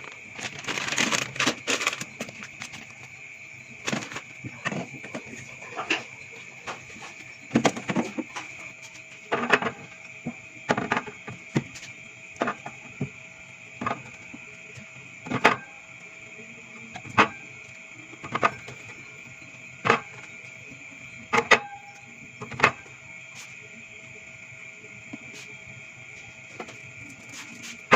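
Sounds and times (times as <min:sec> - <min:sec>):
items knocking and clattering: 0:00.0 - 0:02.8, 0:03.8 - 0:08.5
faint high hum: 0:00.0 - 0:27.9.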